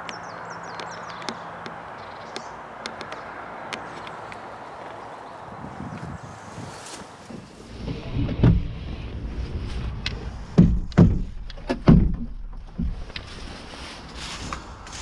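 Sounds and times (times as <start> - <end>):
dull heavy thumps: 7.3 - 13.2
low rumble: 7.7 - 15.0.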